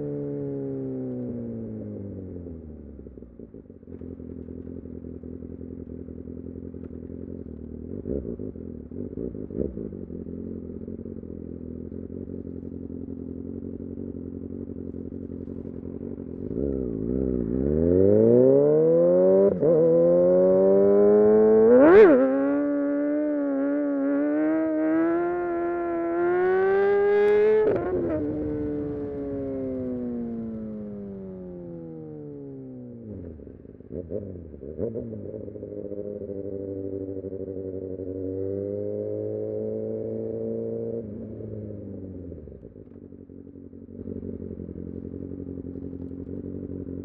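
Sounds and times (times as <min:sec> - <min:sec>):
motorcycle engine idling and revving: 0:00.0 - 0:47.0.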